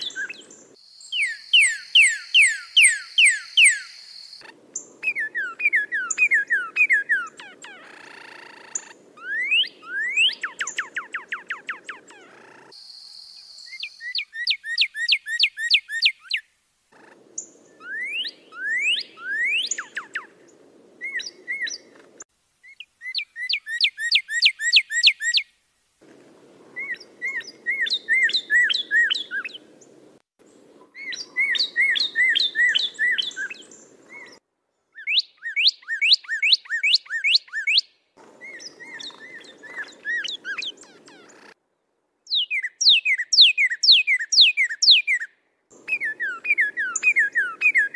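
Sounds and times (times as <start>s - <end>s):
songbird whistled notes: 0.0s - 12.2s, 17.4s - 20.3s, 26.8s - 29.7s, 30.9s - 34.4s, 35.0s - 41.4s, 42.3s - 47.9s.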